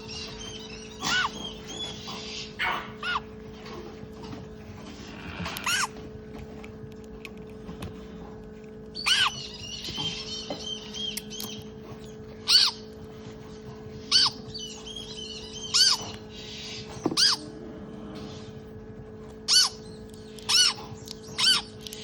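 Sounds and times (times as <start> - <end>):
steady low hum: 0.0 - 22.0
high chirping: 8.9 - 12.9, 14.0 - 17.5.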